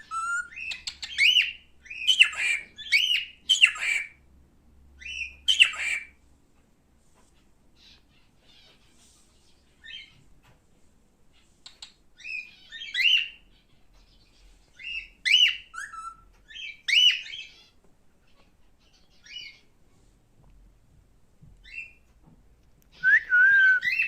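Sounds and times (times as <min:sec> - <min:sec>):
cockatiel whistled chirps: 0:00.0 - 0:04.0, 0:14.8 - 0:17.4, 0:23.0 - 0:24.0.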